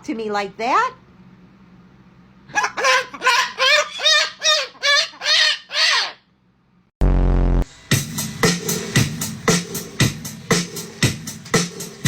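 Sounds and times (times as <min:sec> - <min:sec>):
parrot harsh calls: 0:02.5 - 0:06.3
loud low buzz: 0:07.0 - 0:10.2.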